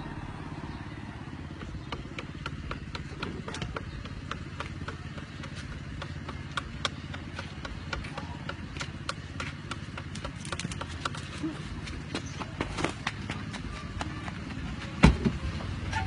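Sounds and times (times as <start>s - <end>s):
car engine idling: 0.0s - 16.0s
sharp clicks and ticks: 1.5s - 11.3s.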